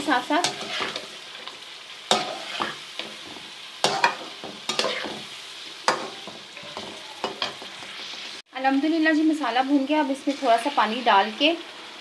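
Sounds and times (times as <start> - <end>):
curry sizzling in a pot: 0.0 - 12.0
spoon scraping a pot: 0.5 - 1.1, 2.1 - 3.2, 3.9 - 5.3.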